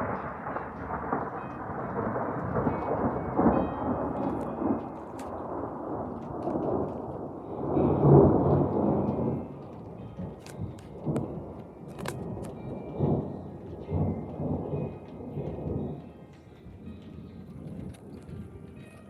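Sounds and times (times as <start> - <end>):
rain falling: 0.0 - 19.0
thunder rumbling: 0.0 - 19.0.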